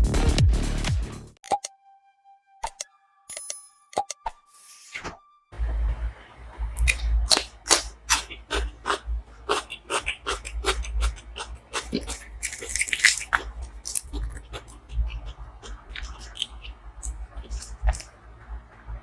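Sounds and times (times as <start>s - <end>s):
person chewing and lip smacking: 6.8s - 18.1s.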